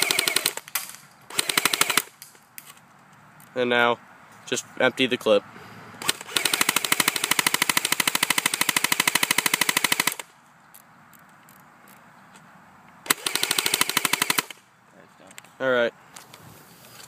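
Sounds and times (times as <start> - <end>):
airsoft rifle firing full auto: 0.0 - 2.1, 6.0 - 10.3, 13.1 - 14.6.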